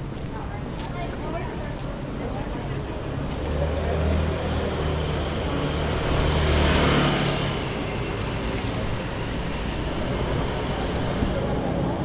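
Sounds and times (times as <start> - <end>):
vehicle passing close: 3.8 - 8.9.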